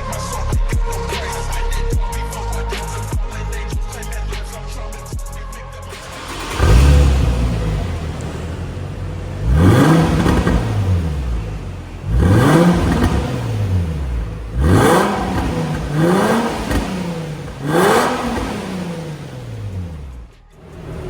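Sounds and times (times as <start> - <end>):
car engine revving: 5.9 - 21.0.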